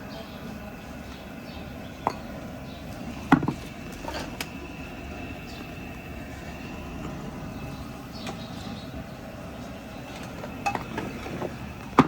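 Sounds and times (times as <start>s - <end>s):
steady background hum: 0.0s - 12.0s
dishes and utensils clinking: 2.0s - 2.3s, 10.1s - 12.0s.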